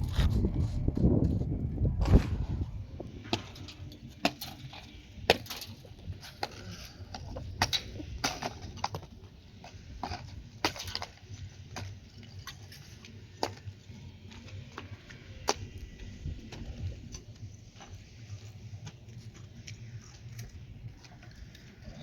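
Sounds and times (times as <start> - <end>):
faint low rumble: 0.0 - 4.0.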